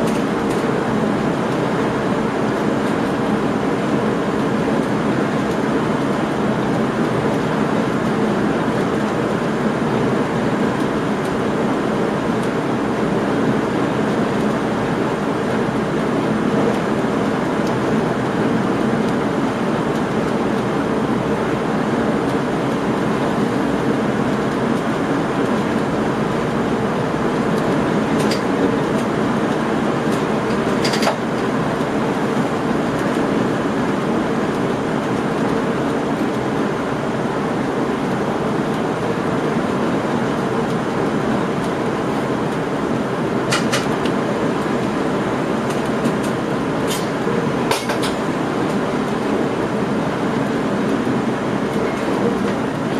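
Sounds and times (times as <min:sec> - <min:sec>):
train running noise from cab: 0:00.0 - 0:52.9.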